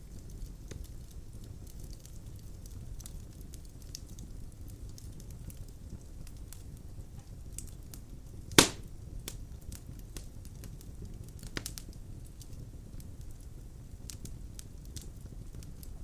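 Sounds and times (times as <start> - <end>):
fire flames rumbling: 0.0 - 16.0
small crackles of fire: 0.0 - 16.0
wood fire sharp pop: 8.5 - 9.4.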